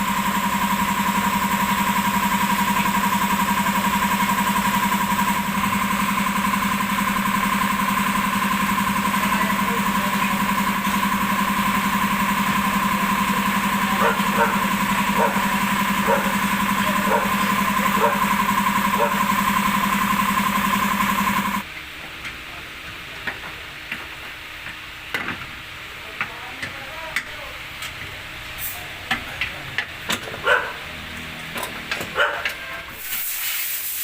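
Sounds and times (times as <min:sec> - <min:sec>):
motor-driven machine running: 0:00.0 - 0:21.7.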